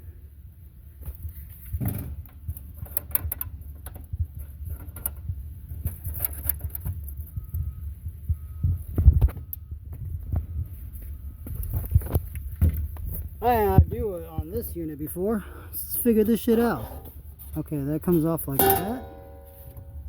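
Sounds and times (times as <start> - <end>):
faint broken tone: 18.1 - 20.0.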